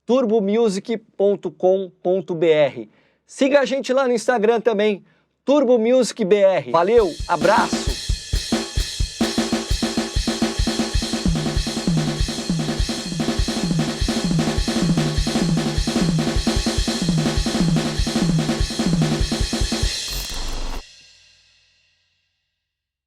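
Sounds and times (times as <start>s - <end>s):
electronic drum kit groove: 6.8s - 20.9s.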